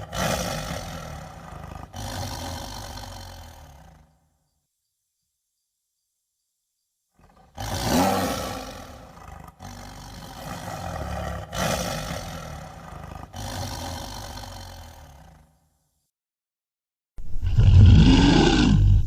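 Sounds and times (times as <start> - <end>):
large animal roaring: 0.0 - 4.0, 7.2 - 15.4, 17.4 - 19.0.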